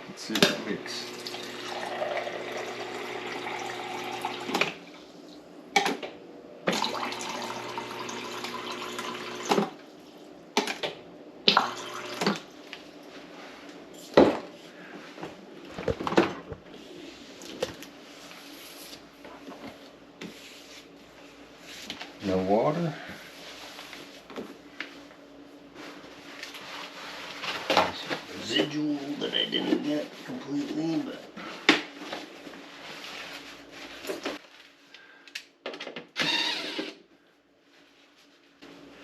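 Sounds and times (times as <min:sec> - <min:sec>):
steady refrigerator hum: 0:00.0 - 0:39.0
water pouring from dispenser: 0:01.1 - 0:04.7, 0:06.7 - 0:09.7, 0:11.5 - 0:12.4.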